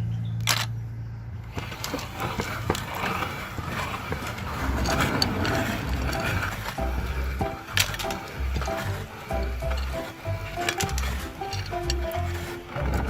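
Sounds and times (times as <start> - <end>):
grinder crackling and clicking: 1.5 - 13.0
meat grinder motor hum: 1.5 - 13.0.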